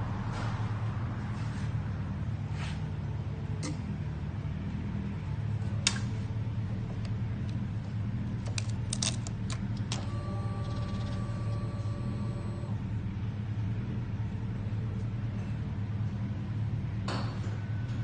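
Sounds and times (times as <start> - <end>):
faint steady tone: 10.0 - 12.8.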